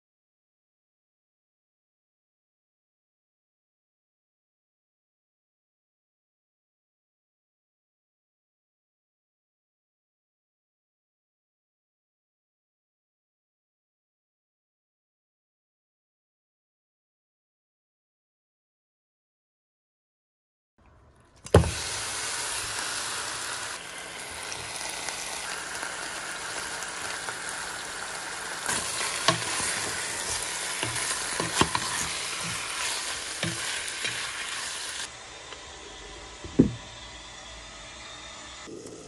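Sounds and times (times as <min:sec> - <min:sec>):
chicken sizzling in a pot: 0:21.4 - 0:35.1
utensil knocking pot: 0:28.7 - 0:34.4.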